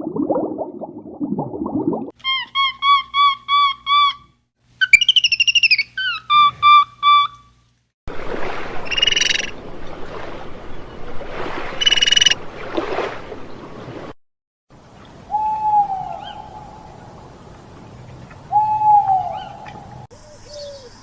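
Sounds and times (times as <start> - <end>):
buzzy bird calls: 4.8 - 7.4, 8.8 - 9.7, 11.8 - 12.4
bird trill: 4.8 - 7.5, 8.8 - 9.6, 11.8 - 12.4
whistled bird calls: 4.8 - 7.5, 8.8 - 9.6, 11.8 - 12.4, 15.3 - 16.8, 18.5 - 21.0.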